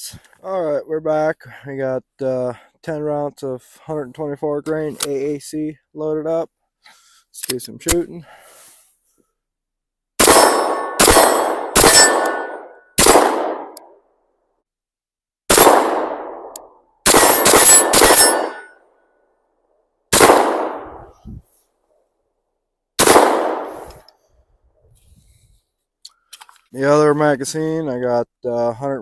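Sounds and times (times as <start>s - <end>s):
pistol shots: 10.2s - 13.8s, 15.5s - 18.7s, 20.1s - 21.1s, 23.0s - 23.9s.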